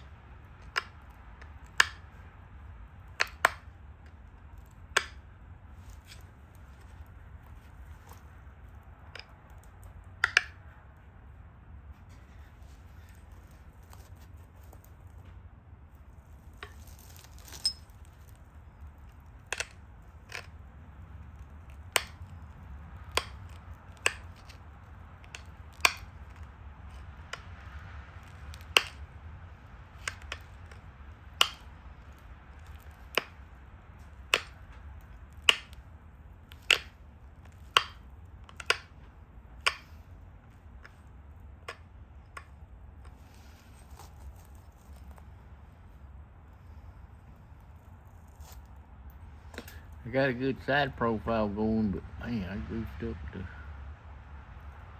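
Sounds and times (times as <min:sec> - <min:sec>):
stone flakes snapping clicks: 0:19.0 - 0:20.5, 0:21.4 - 0:22.4, 0:23.0 - 0:24.6, 0:25.2 - 0:29.1, 0:30.0 - 0:34.7, 0:35.3 - 0:35.8, 0:36.5 - 0:38.9, 0:39.7 - 0:40.0.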